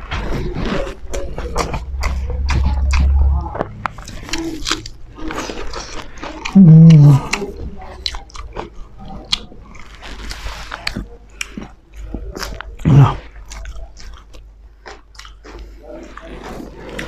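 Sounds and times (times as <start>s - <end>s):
person humming: 1.4s - 4.8s, 6.5s - 7.4s
chewing and lip smacks: 3.9s - 17.0s.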